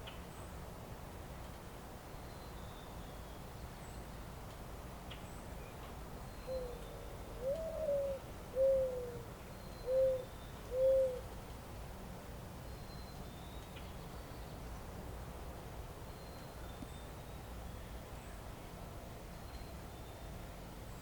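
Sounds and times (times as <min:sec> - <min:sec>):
faint steady hiss: 0:00.0 - 0:21.0
pigeon cooing: 0:07.4 - 0:09.2, 0:09.9 - 0:11.2.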